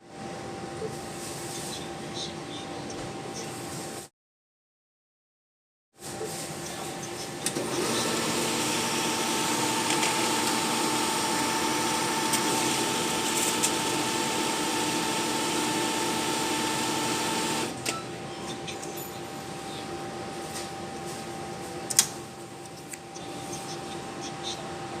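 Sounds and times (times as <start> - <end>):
machine hum: 6.6 - 25.0
cash machine motor whirring: 7.4 - 17.9.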